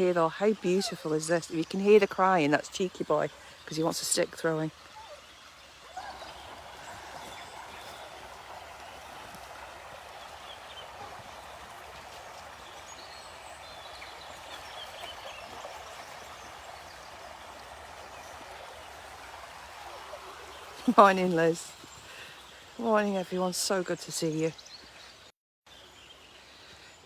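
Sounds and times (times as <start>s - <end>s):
river water rushing: 3.4s - 22.7s.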